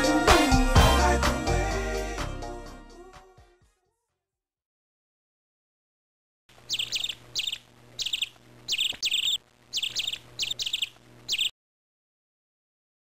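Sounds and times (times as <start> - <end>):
faint low hum: 6.5 - 11.5
songbirds chirping: 6.5 - 11.5.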